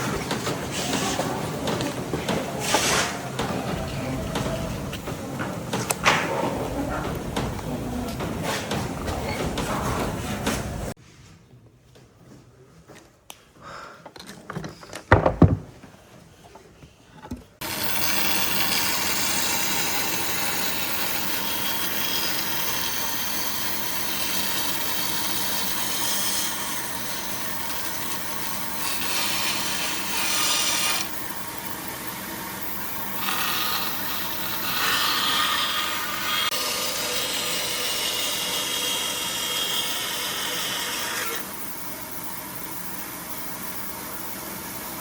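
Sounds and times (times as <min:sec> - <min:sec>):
wood being handled knocks: 0:15.1 - 0:15.7
power tool cutting wood: 0:17.6 - 0:42.0.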